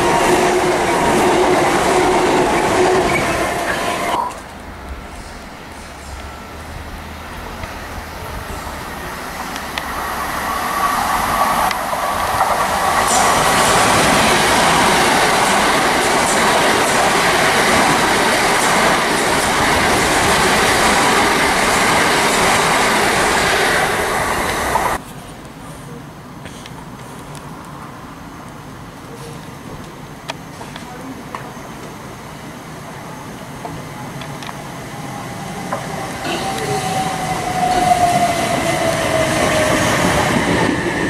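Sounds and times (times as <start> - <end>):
train wheels clattering on rails: 9.4 - 25.0, 35.6 - 41.0.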